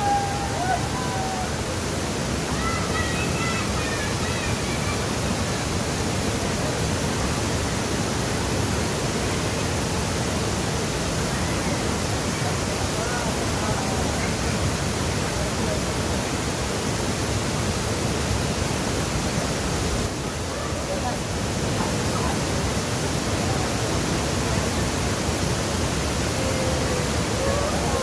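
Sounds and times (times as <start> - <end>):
waterfall rushing: 0.0 - 28.0
faint voices: 20.3 - 22.6, 26.0 - 28.0.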